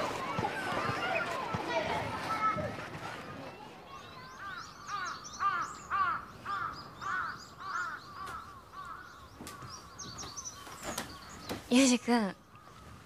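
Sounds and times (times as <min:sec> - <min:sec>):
bird calling: 0:04.0 - 0:13.0.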